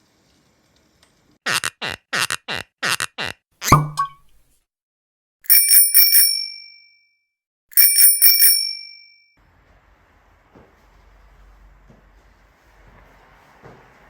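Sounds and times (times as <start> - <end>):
small bell trilling: 5.5 - 6.8, 7.8 - 9.2.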